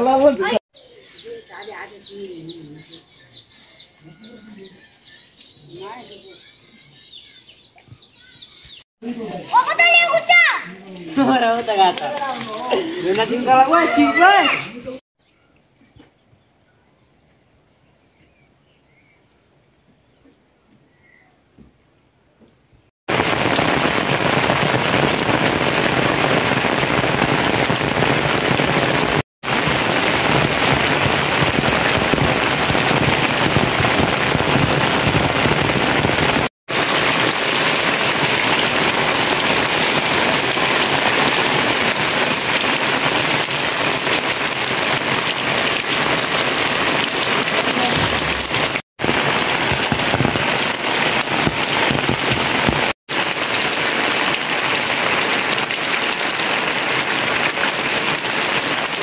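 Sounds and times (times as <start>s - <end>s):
heavy rain pouring: 23.1s - 59.0s.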